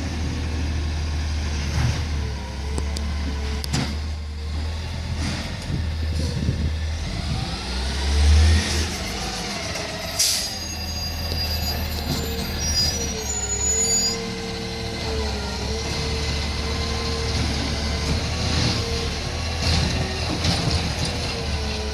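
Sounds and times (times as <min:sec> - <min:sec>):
garbage truck engine revving: 0:06.4 - 0:10.4, 0:14.3 - 0:21.9.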